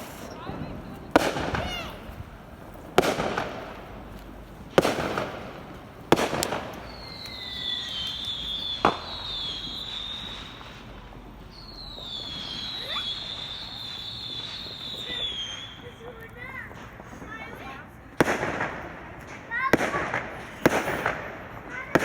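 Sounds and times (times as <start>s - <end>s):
firework crack: 0.0s - 22.0s
fireworks bangs: 0.0s - 22.0s
high wavering whistle: 11.5s - 15.8s.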